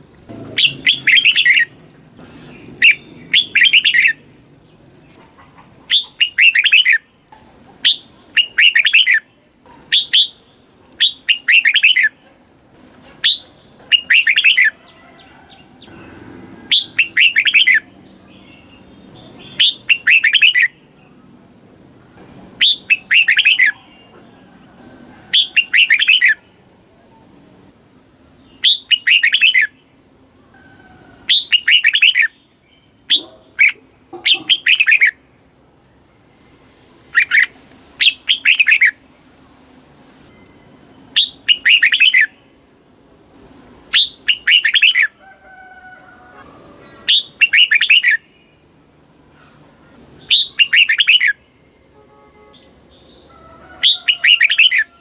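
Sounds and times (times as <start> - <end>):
bird singing whistled notes: 0.0 - 4.3, 5.9 - 7.0, 7.8 - 9.3, 9.9 - 12.1, 13.2 - 14.7, 16.7 - 17.9, 18.5 - 20.8, 22.6 - 24.1, 25.4 - 26.4, 28.5 - 29.8, 31.3 - 35.2, 40.3 - 42.4, 43.9 - 45.2, 47.1 - 48.5, 50.2 - 51.4, 53.8 - 55.0.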